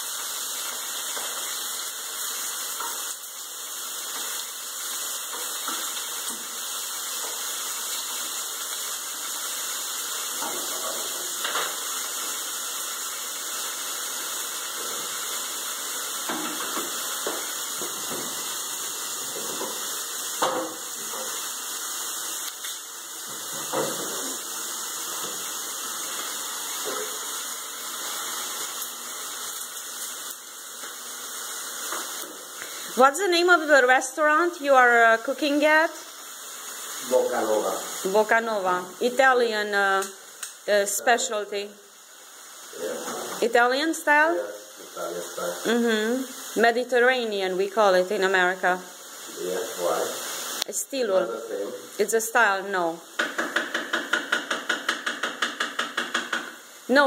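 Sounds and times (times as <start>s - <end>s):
chicken sizzling in a pan: 0.0s - 57.0s
pan and utensil knocks: 53.2s - 56.6s.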